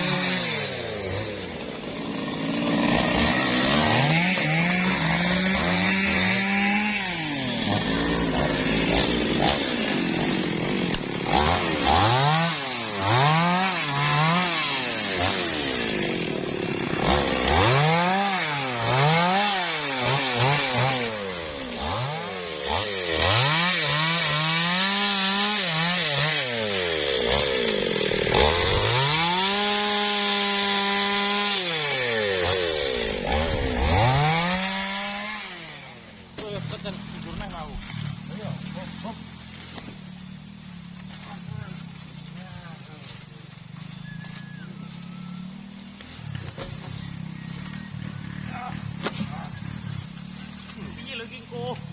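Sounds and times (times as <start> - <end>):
chainsaw revving while cutting wood: 0.0 - 42.4, 44.0 - 51.9.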